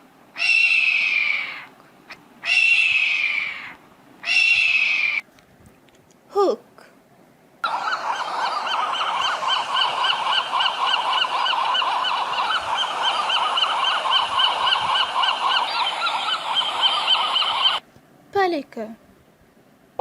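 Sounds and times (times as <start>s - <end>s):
geese honking: 7.6s - 17.8s.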